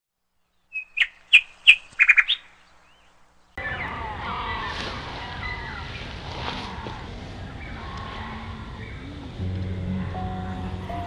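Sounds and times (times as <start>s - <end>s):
chorus of birds singing: 0.4s - 11.0s
bird sharp chirps: 0.5s - 3.9s.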